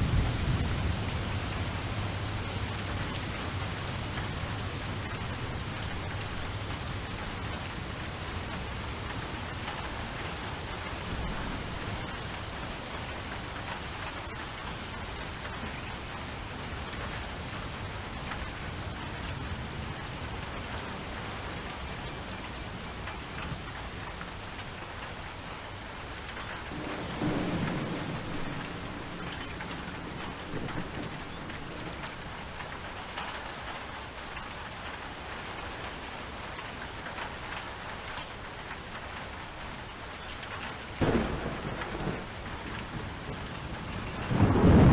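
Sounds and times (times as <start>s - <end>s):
low thunder rumble: 0.0s - 7.6s, 26.7s - 32.9s, 41.0s - 44.9s
steady rain falling: 0.0s - 44.9s.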